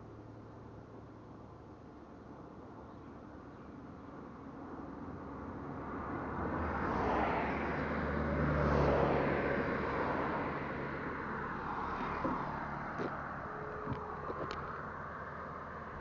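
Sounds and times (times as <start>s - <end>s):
motor vehicle passing by: 5.7s - 16.0s.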